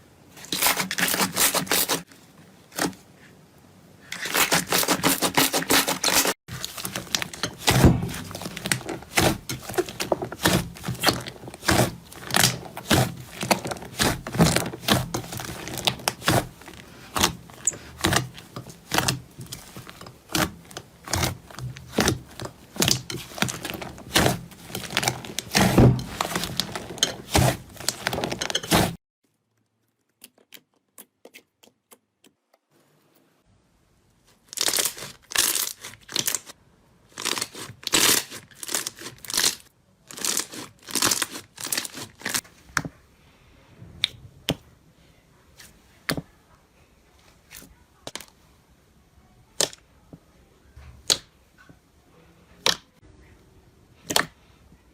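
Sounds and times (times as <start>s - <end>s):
slime crackling and popping: 6.5s - 29.0s, 34.5s - 36.5s, 37.2s - 42.4s.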